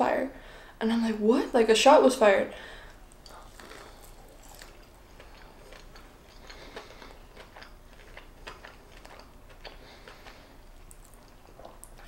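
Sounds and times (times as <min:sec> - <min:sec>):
person chewing crunchy food: 0:02.8 - 0:12.0.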